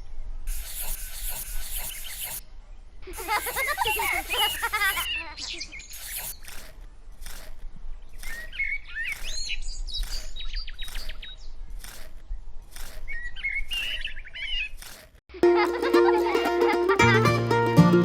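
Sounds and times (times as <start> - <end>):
small birds chirping: 0.0 - 15.2
scratchy strokes: 0.5 - 2.4, 5.9 - 14.1.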